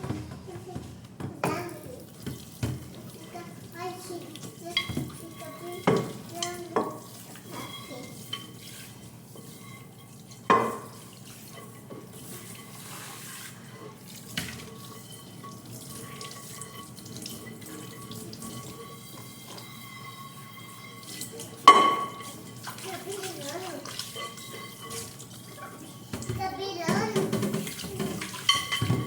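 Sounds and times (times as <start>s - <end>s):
tap running into sink: 0.0s - 7.0s, 26.1s - 29.0s.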